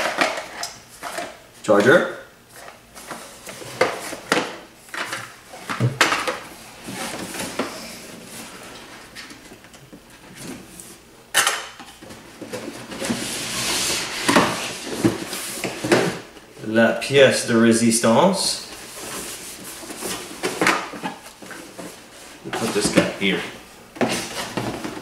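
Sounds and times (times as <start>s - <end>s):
plastic and cardboard clattering: 11.3s - 16.3s, 18.8s - 23.4s, 24.0s - 25.0s.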